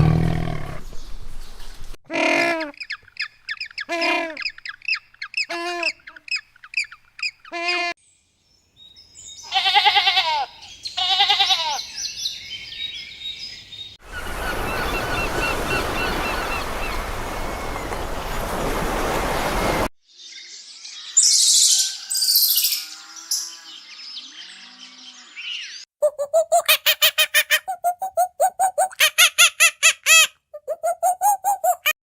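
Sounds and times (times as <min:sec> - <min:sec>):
outdoor background: 0:00.0 - 0:32.0
loud long bird calls: 0:09.4 - 0:19.8
high chirps: 0:30.6 - 0:32.0.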